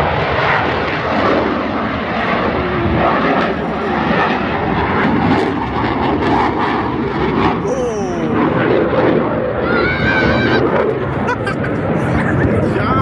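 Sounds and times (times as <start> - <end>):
airplane flying overhead: 0.0 - 13.0.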